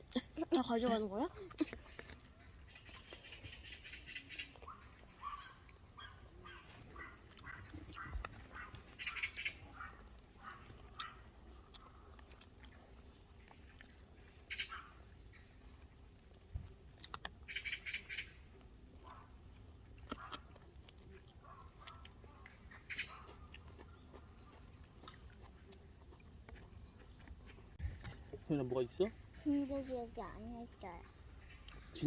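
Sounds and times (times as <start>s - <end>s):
bird calling: 2.7s - 11.1s, 14.4s - 15.6s, 17.5s - 18.4s.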